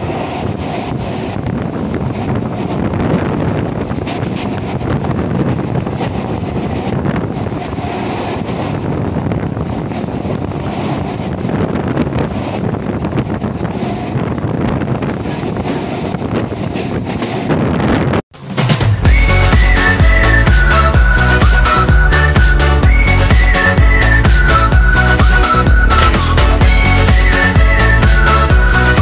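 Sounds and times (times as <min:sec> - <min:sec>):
wind rushing over microphone: 0:00.0 - 0:18.3, 0:19.0 - 0:29.0
train rumbling and rattling: 0:00.0 - 0:29.0.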